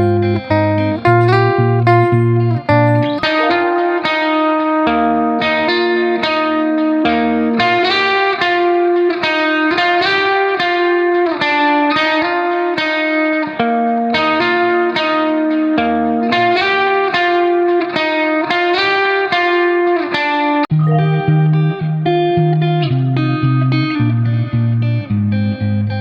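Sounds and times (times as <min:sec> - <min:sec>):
plucked-string melody: 0:00.0 - 0:07.4, 0:20.7 - 0:24.5.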